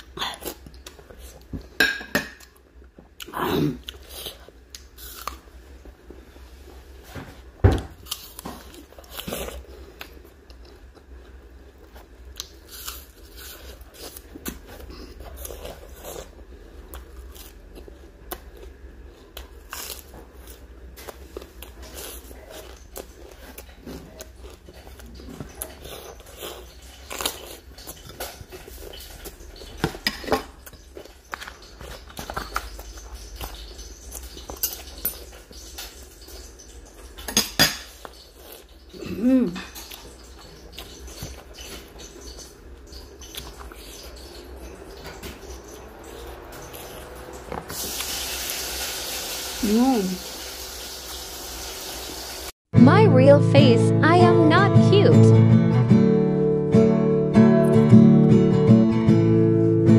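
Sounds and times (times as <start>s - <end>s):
crunchy vegetable chewing: 3.1s - 6.0s, 7.9s - 36.5s, 37.9s - 49.6s.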